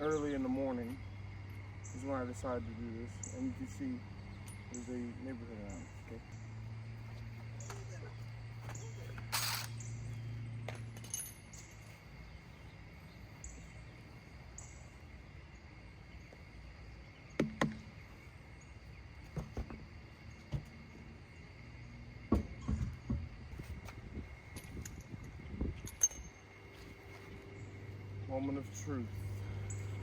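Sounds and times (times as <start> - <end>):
crickets chirping: 0.0 - 30.0
short hiss: 9.3 - 9.8
metallic tool clinks: 10.8 - 11.9, 24.5 - 26.5
low hum: 20.4 - 30.0.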